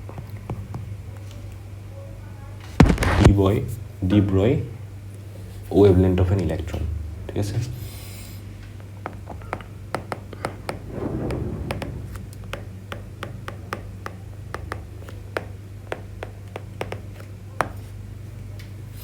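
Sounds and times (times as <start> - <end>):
steady low hum: 10.8 - 12.8
pen tapping and scratching: 13.7 - 17.9.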